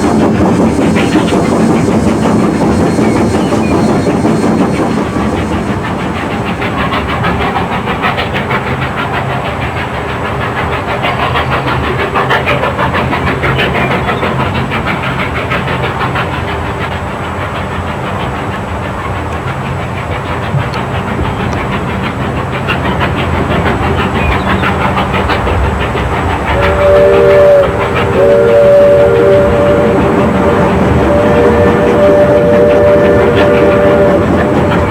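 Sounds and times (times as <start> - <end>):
train clattering on track: 0.0 - 34.9
steam whistle: 26.5 - 34.9.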